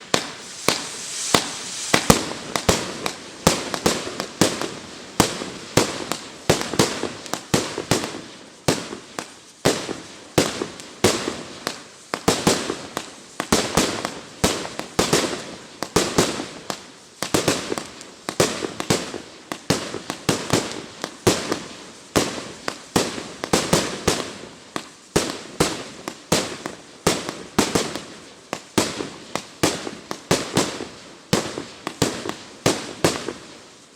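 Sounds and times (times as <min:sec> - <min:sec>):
fireworks bangs: 0:00.0 - 0:16.4
fireworks crackling: 0:00.0 - 0:33.9.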